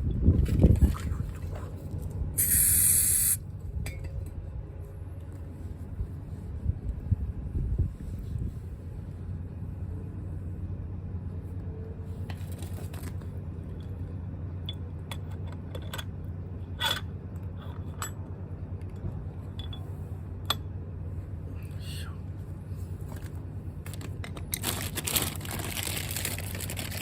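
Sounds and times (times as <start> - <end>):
low mechanical hum: 0.0 - 27.0
metal tools clinking and scraping: 16.8 - 18.2.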